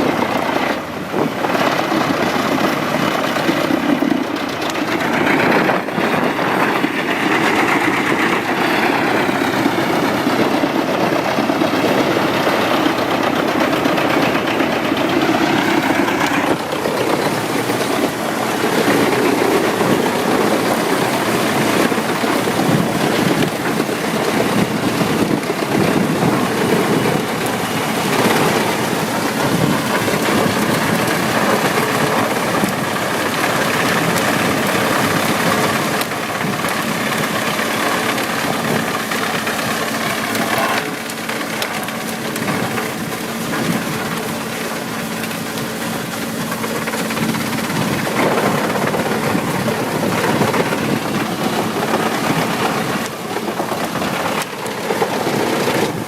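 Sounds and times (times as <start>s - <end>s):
wood chipper running: 0.0s - 56.0s.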